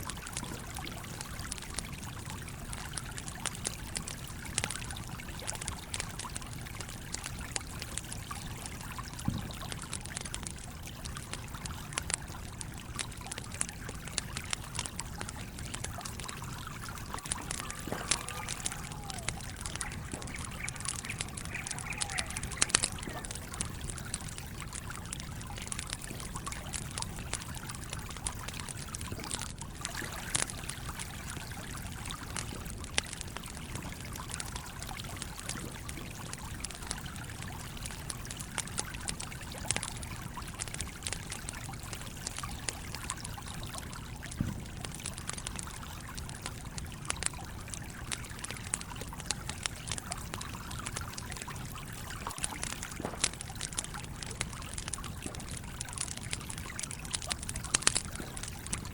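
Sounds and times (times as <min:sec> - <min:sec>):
stream flowing: 0:00.0 - 0:35.5
campfire crackling and popping: 0:00.0 - 0:58.9.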